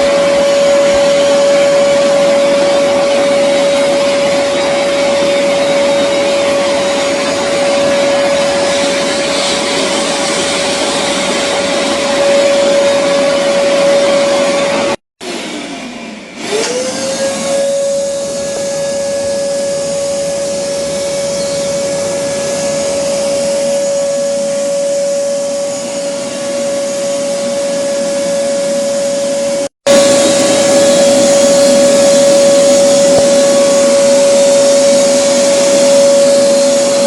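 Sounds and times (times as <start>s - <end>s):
vacuum cleaner whining: 0.0s - 37.0s.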